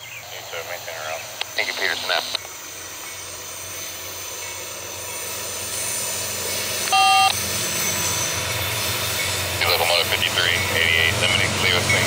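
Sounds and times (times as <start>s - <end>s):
diesel locomotive approaching: 0.0s - 12.0s
scanner radio beep: 1.5s - 2.5s, 6.9s - 7.4s.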